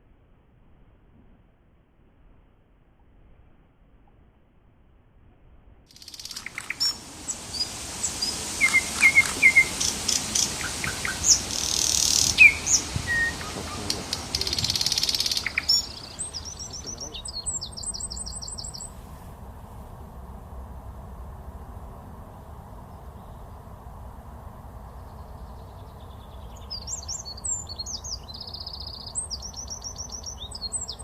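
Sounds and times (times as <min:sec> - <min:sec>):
fast bird trill: 0:06.0 - 0:18.9
birds chirping: 0:06.0 - 0:19.0, 0:24.8 - 0:31.0
buzzy bird calls: 0:06.0 - 0:19.0, 0:25.8 - 0:31.0.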